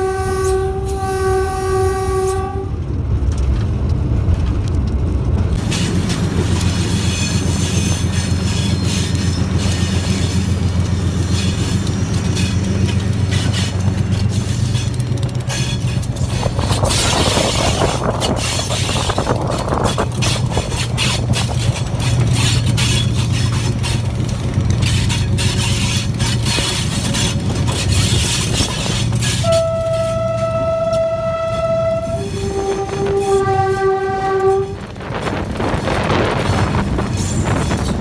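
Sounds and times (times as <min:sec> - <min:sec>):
locomotive horn: 0:00.0 - 0:02.9, 0:24.9 - 0:36.8
low locomotive engine drone: 0:00.0 - 0:38.0
train wheels clattering over track: 0:02.8 - 0:38.0.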